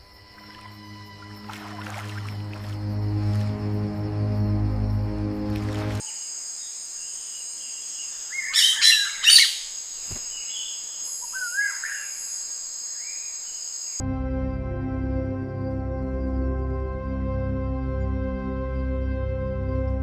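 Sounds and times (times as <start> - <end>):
soft music: 0.0 - 6.0, 14.0 - 20.0
birds calling: 5.2 - 14.0.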